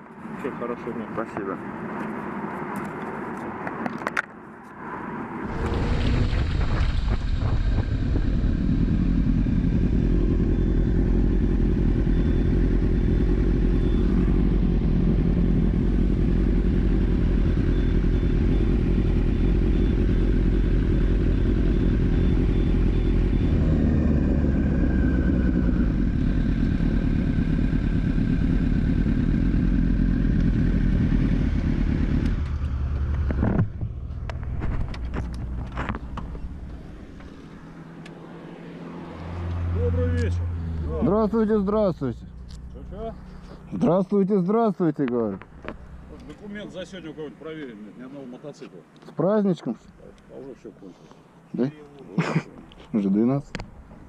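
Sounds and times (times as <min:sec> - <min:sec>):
wind rush on microphone: 0:05.5 - 0:09.0
motorcycle engine running: 0:05.5 - 0:37.9.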